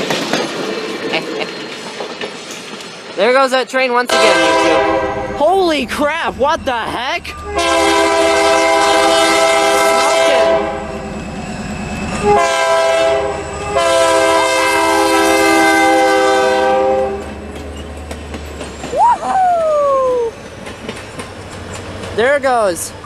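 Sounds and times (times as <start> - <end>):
train rumble and wheel clatter: 0.0 - 23.0
train air horn blasts: 4.1 - 5.4, 7.4 - 10.9, 12.2 - 17.3.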